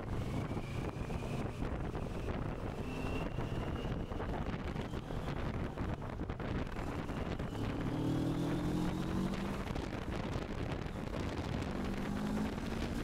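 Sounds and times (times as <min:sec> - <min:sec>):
wind rush on microphone: 0:00.0 - 0:13.0
motorcycle engine running: 0:03.3 - 0:13.0.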